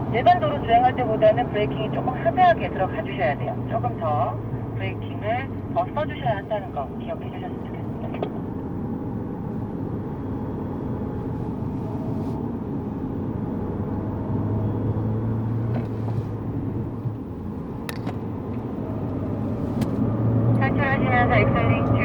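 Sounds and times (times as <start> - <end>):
car engine from inside cabin: 0.0 - 22.0
tyre and road noise: 7.3 - 22.0.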